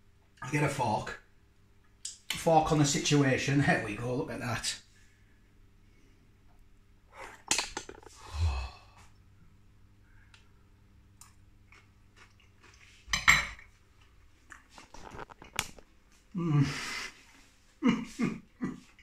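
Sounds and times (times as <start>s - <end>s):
chewing crunchy chips: 11.2s - 13.1s.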